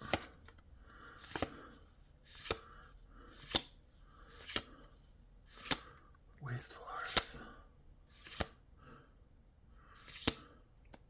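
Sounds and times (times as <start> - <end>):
cards flipped with snap: 0.0 - 0.6, 1.2 - 1.6, 2.3 - 2.7, 3.4 - 4.7, 5.5 - 6.0, 7.0 - 7.4, 8.2 - 8.6, 10.0 - 11.0.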